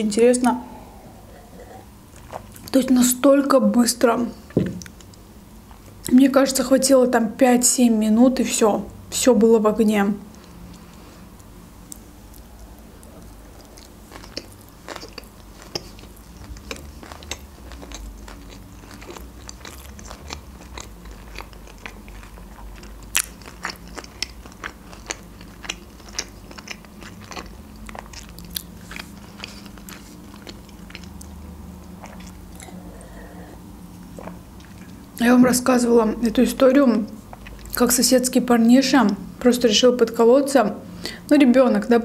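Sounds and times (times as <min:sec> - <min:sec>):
chewing with wet mouth clicks: 0:11.4 - 0:32.8.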